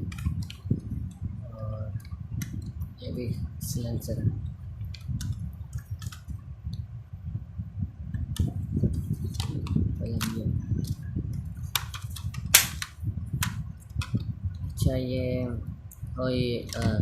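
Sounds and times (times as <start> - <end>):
loud click: 12.5 - 12.9.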